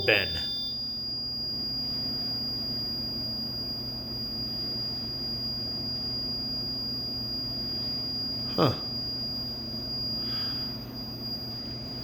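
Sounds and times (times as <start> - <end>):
high-pitched whine: 0.0 - 12.0
low electrical hum: 0.0 - 12.0.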